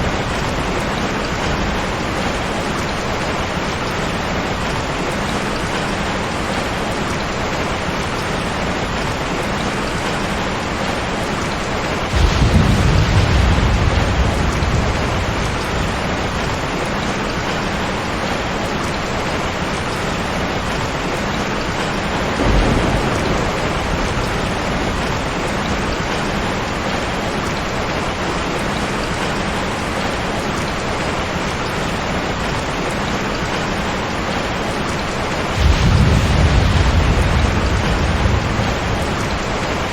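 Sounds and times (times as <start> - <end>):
steady rain falling: 0.0 - 39.9
thunder rolling: 12.0 - 18.2, 21.6 - 27.8, 35.3 - 39.9.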